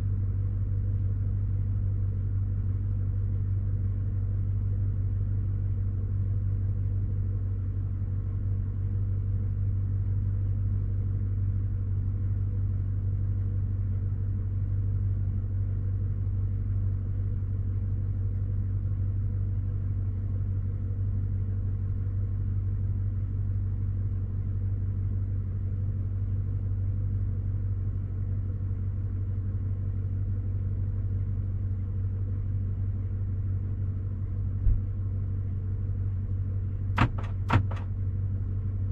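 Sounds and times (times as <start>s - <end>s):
truck engine idling: 37.0s - 38.0s.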